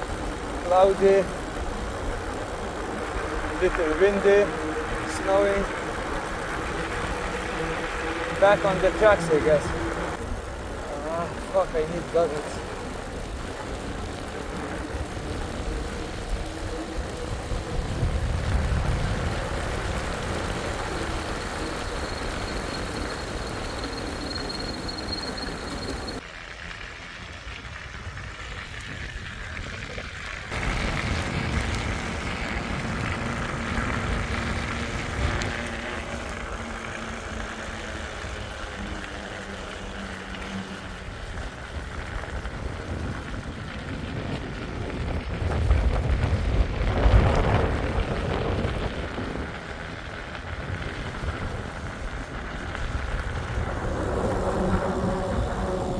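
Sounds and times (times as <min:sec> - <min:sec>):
wind buffeting microphone: 0:00.0 - 0:24.7, 0:27.4 - 0:40.1, 0:40.8 - 0:55.9
road noise: 0:00.0 - 0:55.9.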